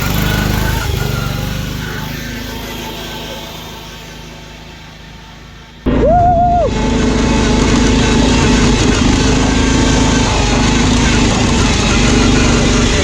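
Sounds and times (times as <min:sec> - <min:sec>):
lawn mower engines running hard: 0:00.0 - 0:13.0
person yelling: 0:05.9 - 0:06.8.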